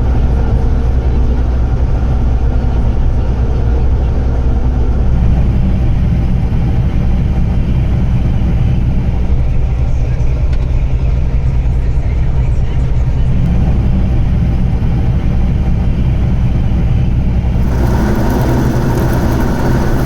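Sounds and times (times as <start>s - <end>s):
tractor engine droning: 17.5s - 20.0s.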